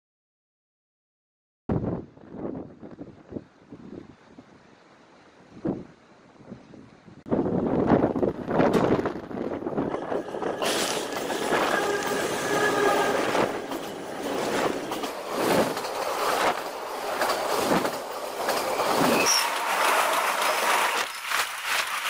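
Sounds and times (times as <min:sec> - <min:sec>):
freight train rushing past: 0:07.6 - 0:22.0.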